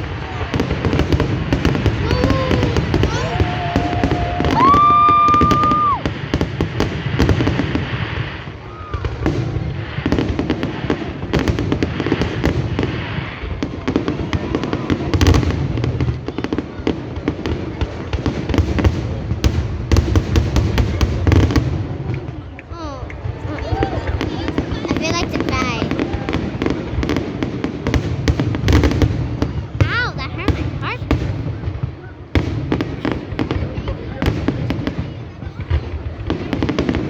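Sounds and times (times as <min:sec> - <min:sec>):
fireworks crackling and popping: 0:00.0 - 0:37.0
fireworks low booms: 0:00.0 - 0:37.0.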